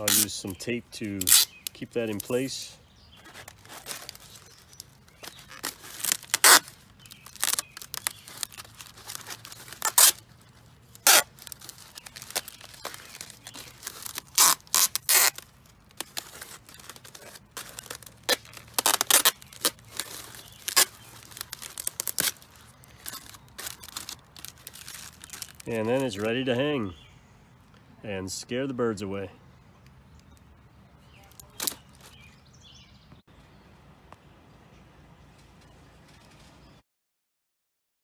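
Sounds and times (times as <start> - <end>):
tape pulled off roll and torn: 0.0 - 0.6, 1.2 - 2.4, 3.1 - 26.3, 31.3 - 32.2.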